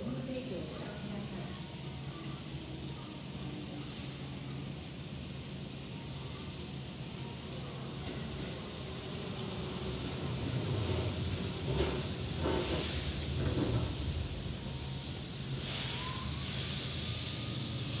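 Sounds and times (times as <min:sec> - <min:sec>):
train wheels rumbling on rails: 0:08.0 - 0:18.0
air brake hiss: 0:12.4 - 0:13.3, 0:15.5 - 0:18.0.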